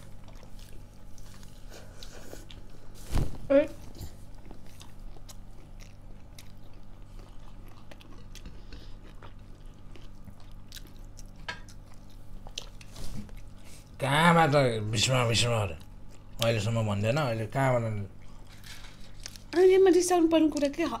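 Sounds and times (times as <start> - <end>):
chewing and biting food: 0.0 - 2.9, 3.8 - 13.6.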